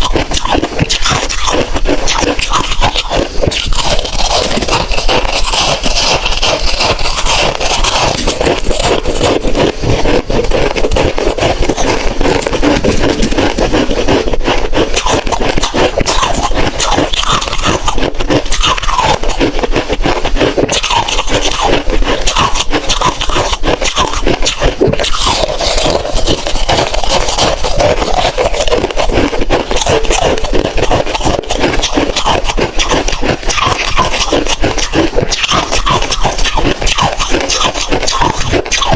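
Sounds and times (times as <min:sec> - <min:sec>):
ice being crunched and chewed: 0:00.0 - 0:38.9.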